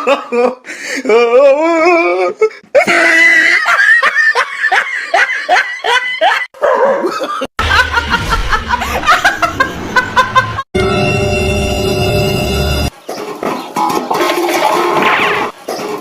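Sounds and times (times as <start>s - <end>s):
person laughing: 0.0s - 10.7s
low rumble: 7.6s - 10.6s.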